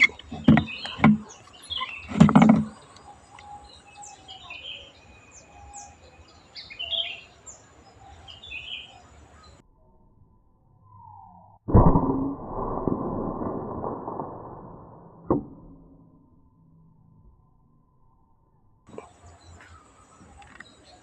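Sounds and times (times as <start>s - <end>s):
small birds chirping: 0.0s - 9.6s, 18.9s - 21.0s.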